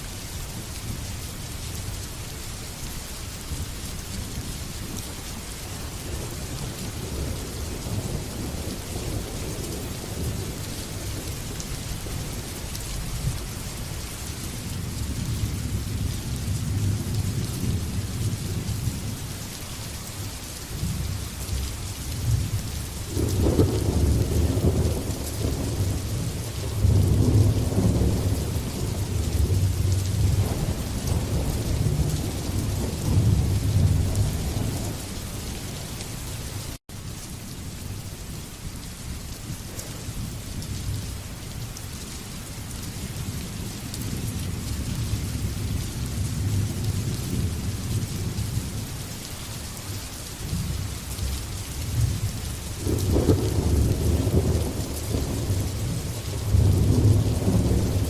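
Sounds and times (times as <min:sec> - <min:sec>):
heavy rain: 0:00.0 - 0:58.0
rolling thunder: 0:22.2 - 0:35.4, 0:51.9 - 0:58.0.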